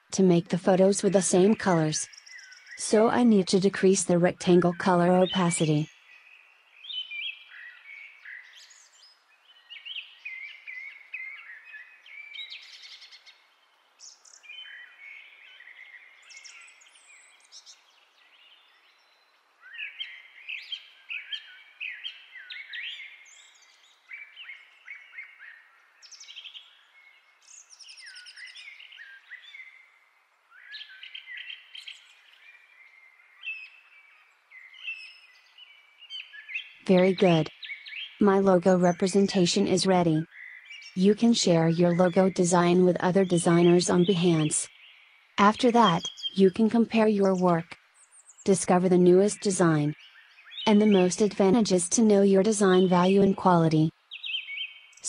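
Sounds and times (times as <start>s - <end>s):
birds chirping and singing: 0.4s - 13.3s, 14.0s - 29.8s, 30.6s - 55.0s.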